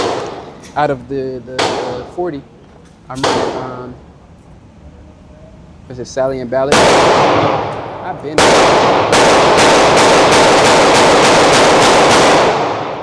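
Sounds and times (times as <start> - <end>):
pistol shots echoing indoors: 0.0 - 0.6, 3.2 - 3.7, 6.7 - 13.0.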